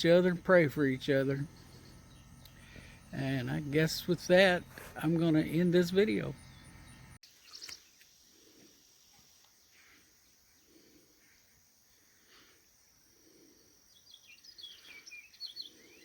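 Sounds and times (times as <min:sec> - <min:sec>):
crickets droning: 0:00.0 - 0:16.0
bird chirps: 0:06.4 - 0:08.0, 0:13.9 - 0:16.0.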